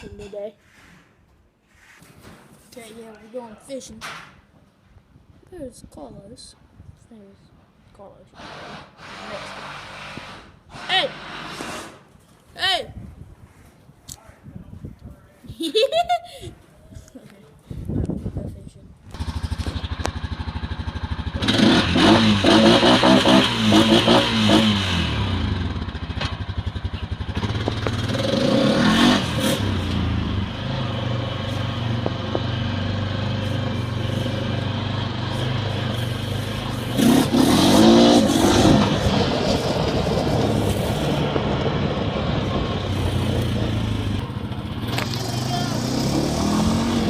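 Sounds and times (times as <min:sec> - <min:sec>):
vehicle engine revving: 0:19.1 - 0:47.0.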